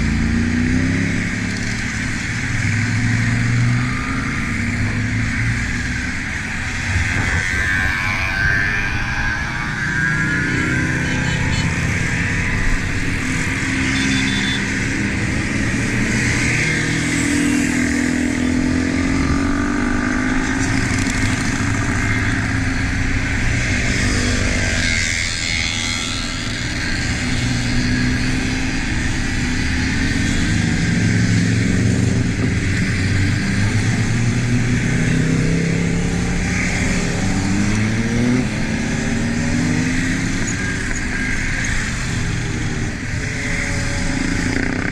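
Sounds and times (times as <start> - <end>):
motorcycle engine while riding: 0.0 - 44.9
other motorcycles: 0.0 - 44.9
wind rush: 6.1 - 10.6.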